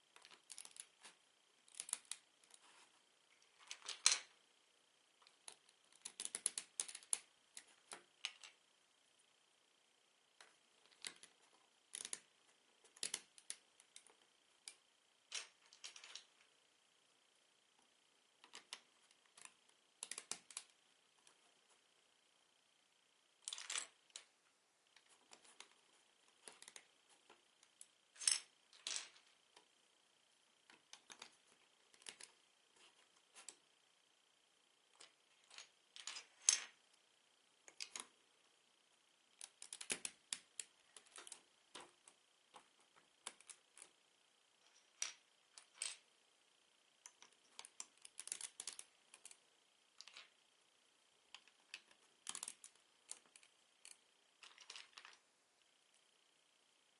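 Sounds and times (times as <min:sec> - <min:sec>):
plastic bricks clicking and clattering: 0:05.4 - 0:08.6, 0:10.9 - 0:12.2, 0:12.9 - 0:14.1, 0:39.4 - 0:41.9, 0:47.1 - 0:49.4, 0:51.3 - 0:55.2.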